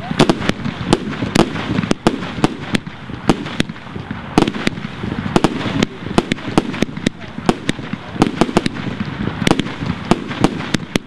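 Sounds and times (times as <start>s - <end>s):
fireworks bangs: 0.0s - 11.0s
fireworks hissing crackle: 0.0s - 11.0s.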